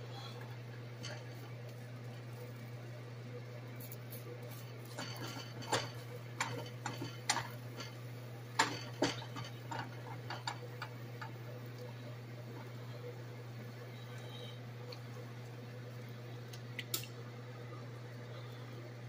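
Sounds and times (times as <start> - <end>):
steady low hum: 0.0 - 19.0
kitchen utensils clicking and tapping: 4.8 - 8.0, 8.6 - 11.4.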